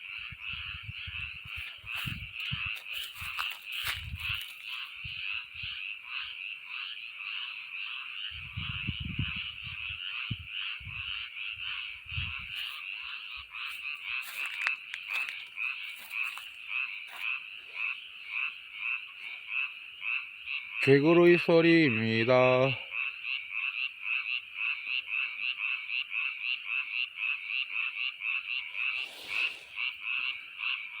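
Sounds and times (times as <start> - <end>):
frogs calling in chorus: 0.0 - 31.0
brief hiss: 28.9 - 29.8.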